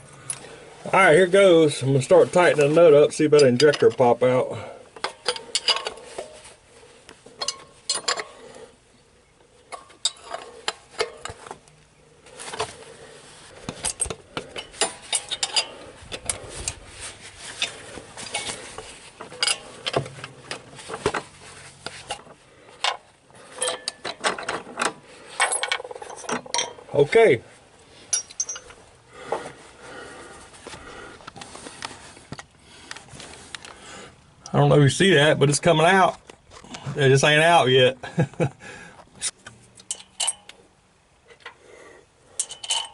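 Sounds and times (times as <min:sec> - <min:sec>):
wrench clicking on metal: 0:42.4 - 0:42.9.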